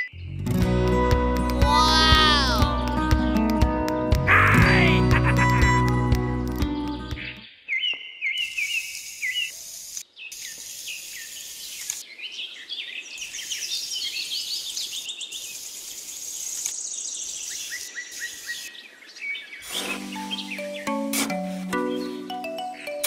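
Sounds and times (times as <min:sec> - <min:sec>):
small birds chirping: 0:06.6 - 0:23.0.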